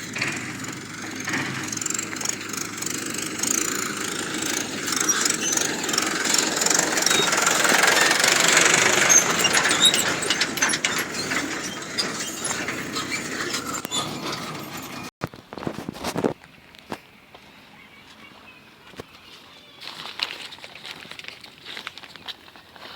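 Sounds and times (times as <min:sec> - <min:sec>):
excavator machinery noise: 0:00.0 - 0:17.1.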